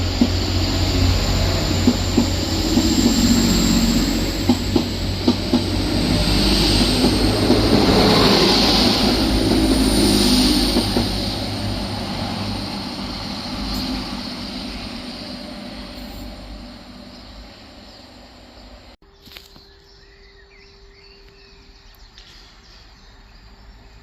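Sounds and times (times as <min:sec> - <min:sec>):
train moving along the line: 0:00.0 - 0:19.0.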